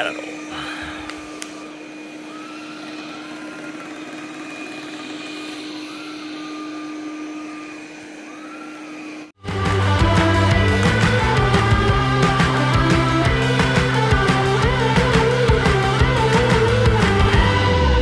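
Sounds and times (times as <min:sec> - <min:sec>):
robot vacuum motor humming: 0:00.0 - 0:09.4
short rising and falling whines: 0:00.0 - 0:18.0.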